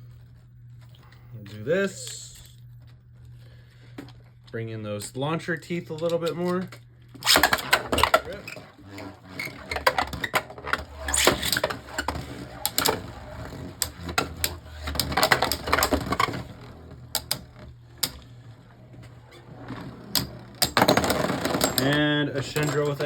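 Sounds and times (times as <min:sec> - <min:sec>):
plastic tops clicking and knocking: 0:07.2 - 0:16.6, 0:19.7 - 0:23.0
spinning tops whirring: 0:07.2 - 0:23.0.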